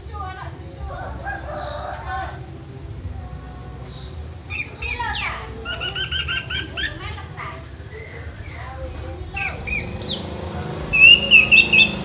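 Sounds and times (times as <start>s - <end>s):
thrush singing: 1.1s - 12.0s.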